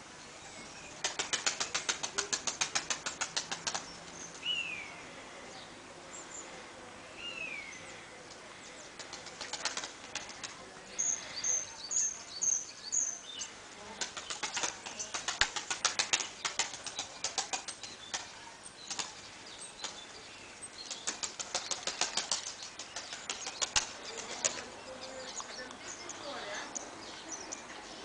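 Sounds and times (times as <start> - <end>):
pigeon wings clapping: 1.0 - 4.0, 9.0 - 10.6, 14.0 - 19.2, 19.8 - 20.0, 20.8 - 24.7.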